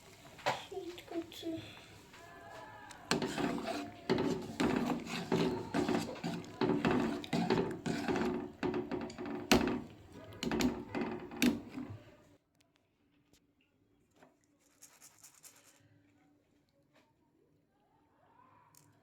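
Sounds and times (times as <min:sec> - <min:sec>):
spatula scraping in cooking pot: 0:03.0 - 0:12.1
spatula knocking against pot: 0:03.1 - 0:12.0.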